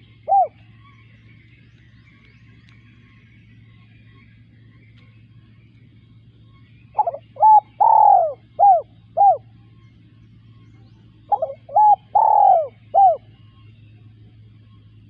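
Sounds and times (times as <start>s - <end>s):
dove cooing: 0.0s - 0.8s, 6.9s - 9.6s, 11.2s - 13.6s.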